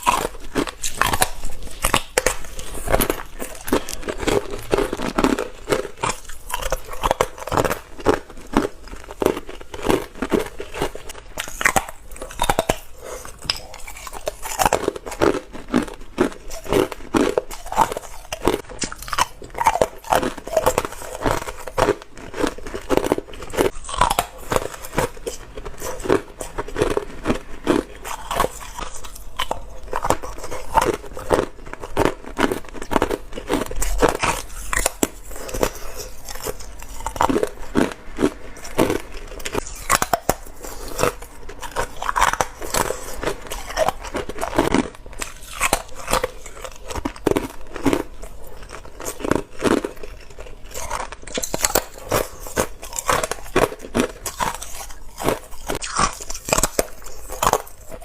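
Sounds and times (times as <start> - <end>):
person chewing ice: 0.0 - 58.0.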